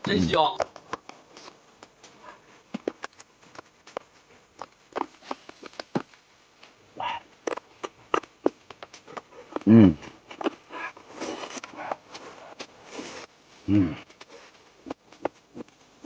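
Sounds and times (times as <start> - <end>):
slurping: 7.0 - 8.3
chewing: 7.1 - 12.6.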